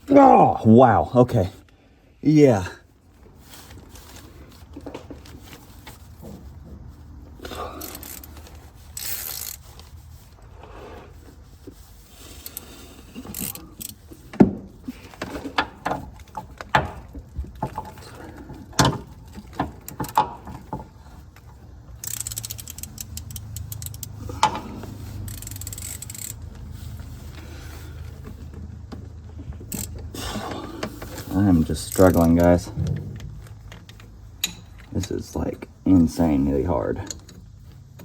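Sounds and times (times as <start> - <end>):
low steady noise: 0.0 - 38.0
metal wrenches clinking and scraping: 7.3 - 9.9, 12.3 - 38.0.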